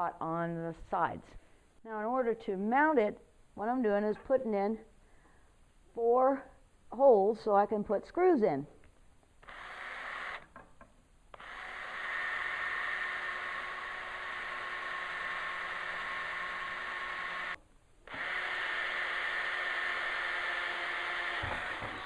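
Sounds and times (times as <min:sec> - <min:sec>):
electric drill boring: 0:09.4 - 0:10.6, 0:11.3 - 0:22.0.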